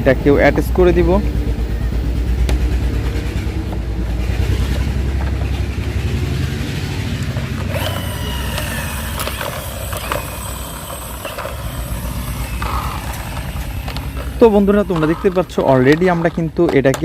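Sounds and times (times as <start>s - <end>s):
steady low hum: 0.0s - 16.8s
plastic toy wheels handled: 7.2s - 17.0s
toy wheels snapping on: 7.2s - 17.0s.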